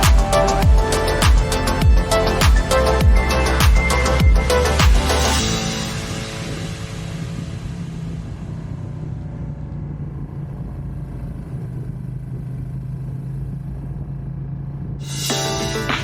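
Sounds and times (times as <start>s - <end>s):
music: 0.0s - 8.6s, 15.0s - 16.0s
motorcycle engine running: 0.0s - 15.1s.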